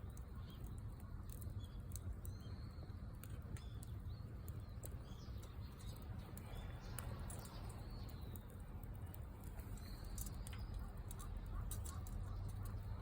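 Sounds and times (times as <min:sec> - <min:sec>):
wood campfire crackling: 0:00.0 - 0:13.0.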